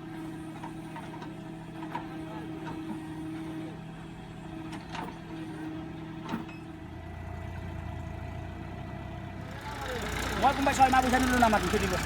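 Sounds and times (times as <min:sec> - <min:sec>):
tractor engines running: 0:07.3 - 0:12.0.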